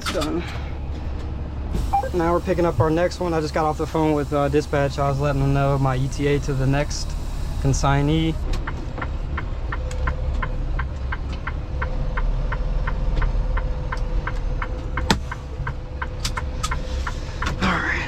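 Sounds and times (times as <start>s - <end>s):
truck engine rumbling: 0.0s - 18.0s
faint steady tone: 1.9s - 6.3s.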